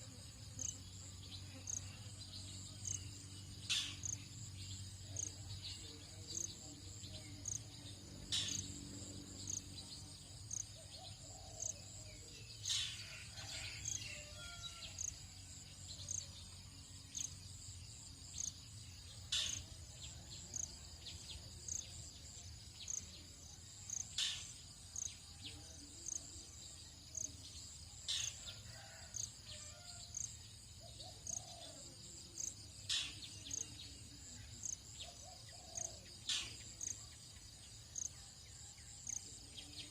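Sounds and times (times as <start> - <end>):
crickets buzzing: 0.0 - 11.7.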